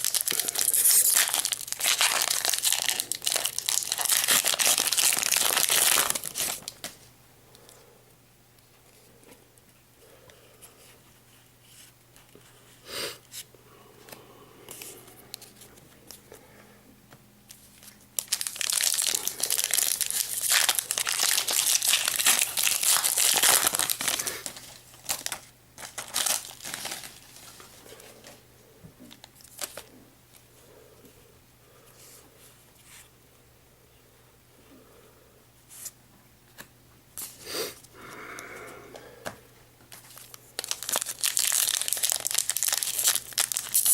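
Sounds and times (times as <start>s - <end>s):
foil wrapper tearing and crinkling: 0.0s - 7.0s, 17.8s - 27.6s, 29.4s - 29.9s, 40.0s - 43.9s.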